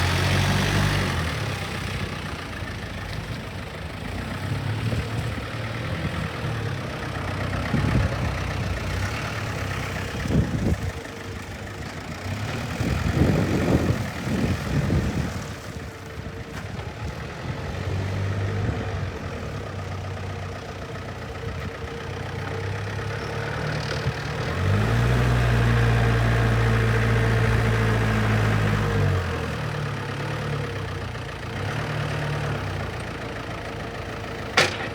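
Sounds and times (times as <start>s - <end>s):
diesel forklift engine running: 0.0s - 34.9s
knocks and clatters: 34.5s - 34.9s.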